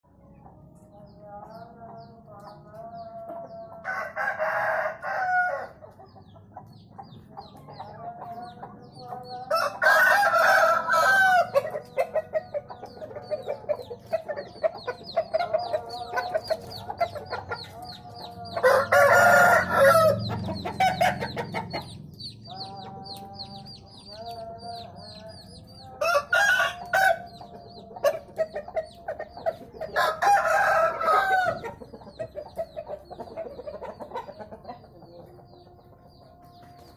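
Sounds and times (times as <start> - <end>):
roosters crowing: 2.9 - 6.1, 7.7 - 34.9
hens clucking softly: 26.8 - 36.8.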